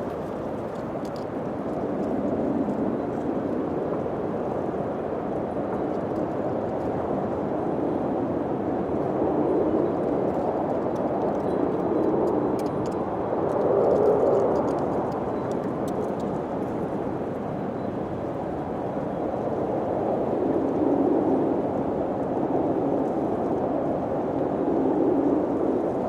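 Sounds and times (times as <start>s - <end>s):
wind blowing: 0.0s - 26.0s.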